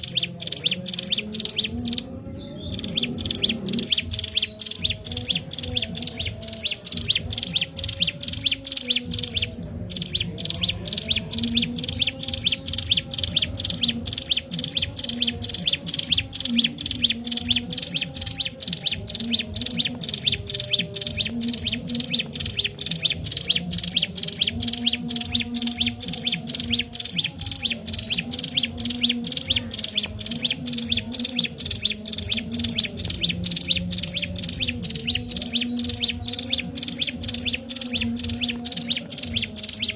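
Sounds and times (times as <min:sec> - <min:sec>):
bird rapid high chirps: 0:00.0 - 0:39.9.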